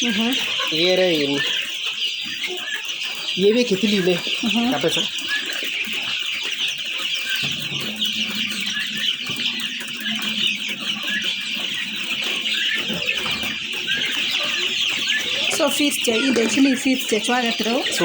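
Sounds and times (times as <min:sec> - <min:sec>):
chicks peeping: 0:00.0 - 0:18.0.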